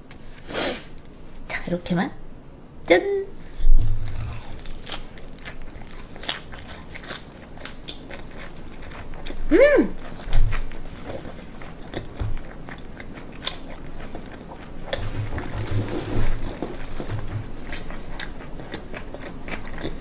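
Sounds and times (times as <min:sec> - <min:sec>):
person humming mmm: 0:03.7 - 0:04.6, 0:09.5 - 0:10.0
wet crunchy chewing: 0:03.7 - 0:20.0.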